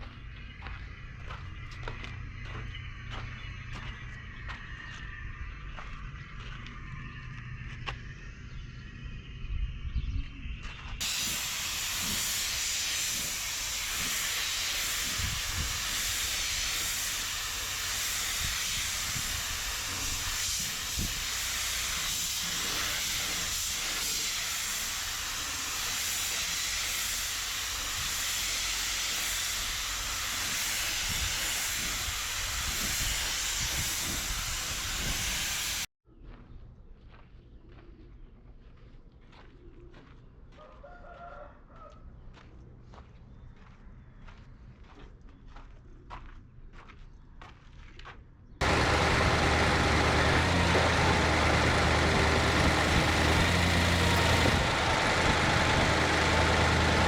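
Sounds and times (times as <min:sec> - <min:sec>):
compressed air hissing: 0:11.0 - 0:35.9, 0:48.6 - 0:57.0.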